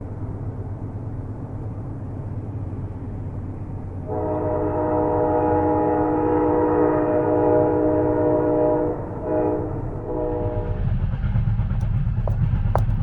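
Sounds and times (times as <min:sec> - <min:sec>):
train rumbling: 0:00.0 - 0:13.0
train horn chord: 0:04.0 - 0:10.8.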